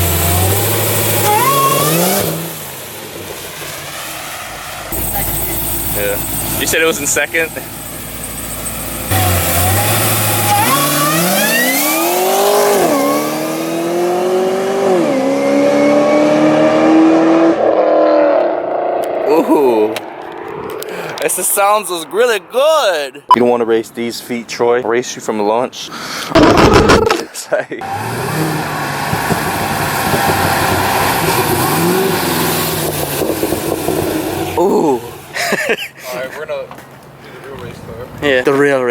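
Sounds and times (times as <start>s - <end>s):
car engine revving accelerating: 0.0s - 2.9s, 9.0s - 19.4s, 27.8s - 34.6s.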